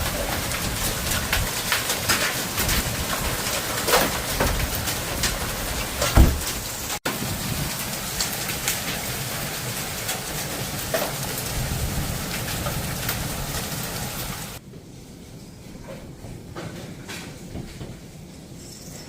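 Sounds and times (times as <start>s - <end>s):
heavy rain falling: 0.0s - 14.6s
low thump: 6.2s - 6.5s.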